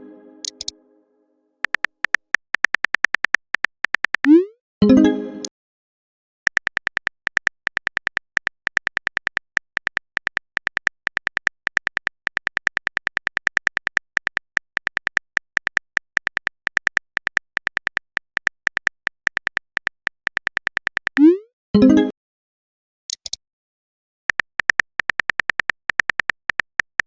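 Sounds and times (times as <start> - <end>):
keyboard typing clicks: 0.4 - 0.8, 1.6 - 4.5, 6.5 - 21.4, 24.3 - 27.0.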